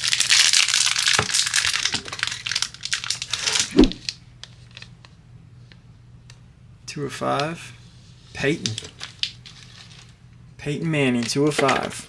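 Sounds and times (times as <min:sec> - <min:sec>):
plastic crinkling and rustling: 0:00.0 - 0:04.9, 0:08.4 - 0:10.2.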